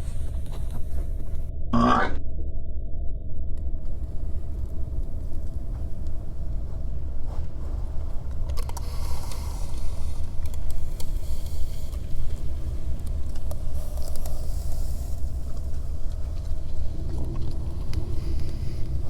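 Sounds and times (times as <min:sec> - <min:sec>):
crackling and rustling: 0:03.8 - 0:19.0.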